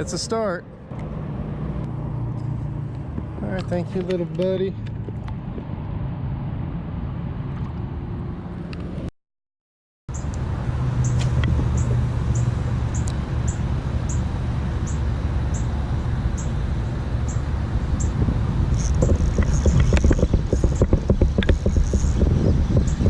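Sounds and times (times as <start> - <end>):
wind buffeting microphone: 16.6 - 23.0.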